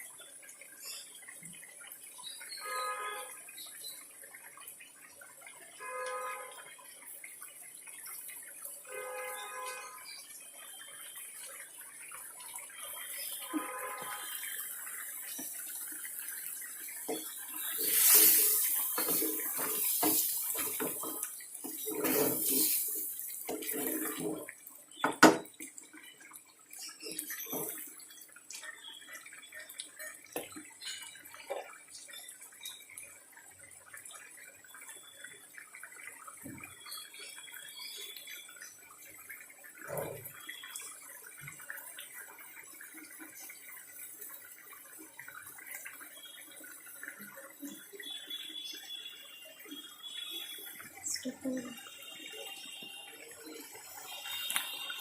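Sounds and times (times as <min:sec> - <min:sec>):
tap water splashing into sink: 0:15.2 - 0:15.8, 0:16.9 - 0:25.8, 0:26.8 - 0:28.6.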